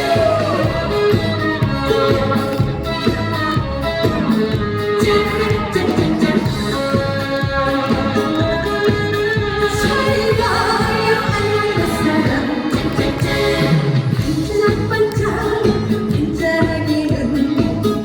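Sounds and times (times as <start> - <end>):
woman singing: 0.0 - 2.6, 5.0 - 6.7, 9.6 - 18.0
backing track with steady beat: 0.0 - 18.0.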